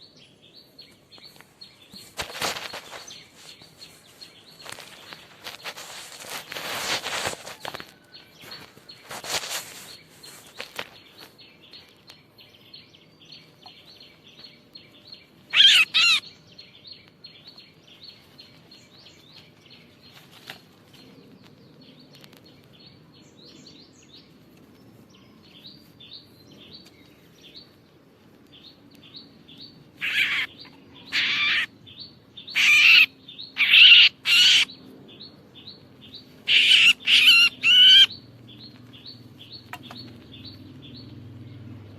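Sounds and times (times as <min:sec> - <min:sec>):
bird warbling calls: 0:15.5 - 0:16.4, 0:30.0 - 0:31.7, 0:32.4 - 0:34.8, 0:36.1 - 0:41.0.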